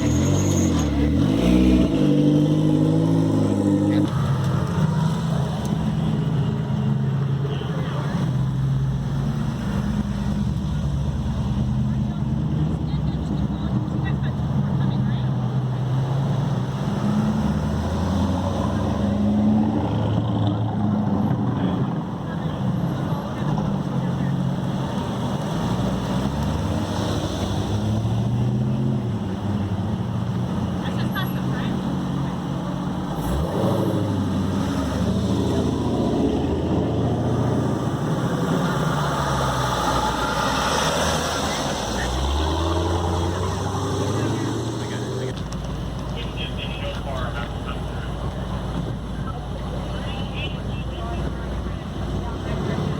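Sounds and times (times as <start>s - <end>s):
crowd chatter: 9.9s - 17.2s, 40.1s - 52.9s
car engines running at low revs: 19.8s - 52.9s.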